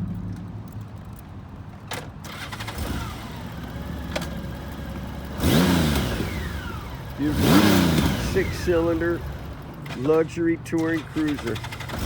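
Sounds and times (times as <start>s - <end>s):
motorcycle engine starting and idling: 0.0s - 12.0s
engine revving: 2.3s - 10.1s, 10.8s - 12.0s.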